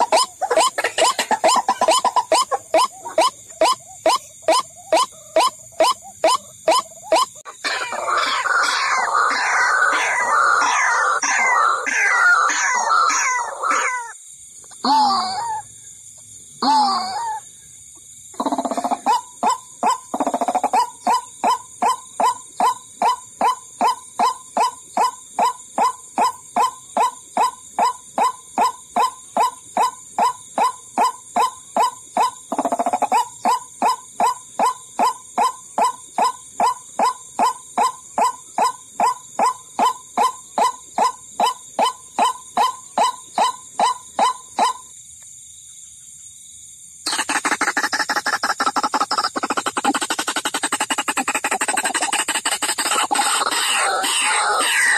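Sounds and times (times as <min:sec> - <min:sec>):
waterhen calling: 0:00.0 - 0:14.2, 0:47.1 - 0:54.9.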